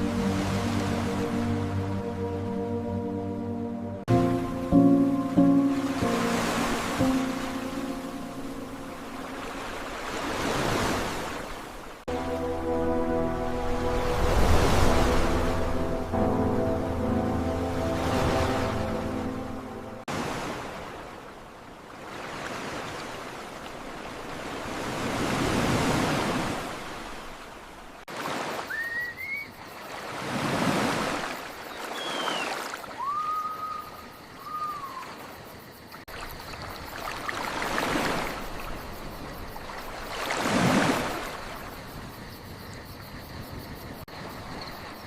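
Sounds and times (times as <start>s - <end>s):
ocean waves surging: 0.0s - 28.8s, 29.8s - 33.6s, 36.8s - 41.9s
short whistling calls: 28.6s - 29.6s, 31.8s - 35.2s.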